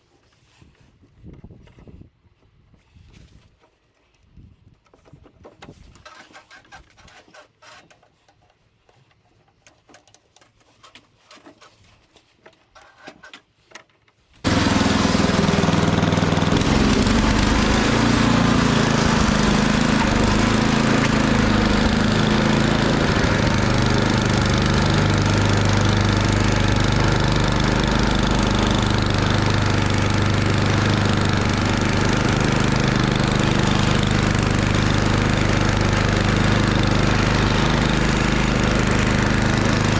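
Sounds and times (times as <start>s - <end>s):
snowblower engine running: 14.5s - 39.9s.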